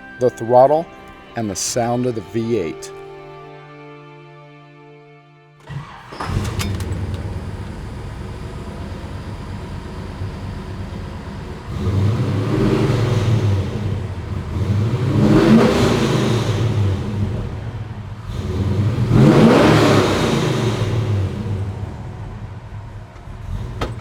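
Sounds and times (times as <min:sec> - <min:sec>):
car engine revving: 0:05.6 - 0:24.0.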